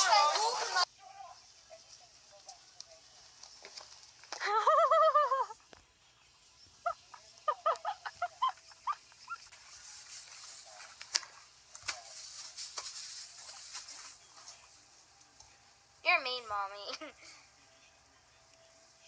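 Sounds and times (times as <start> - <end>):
rustling hiss: 6.8 - 16.3.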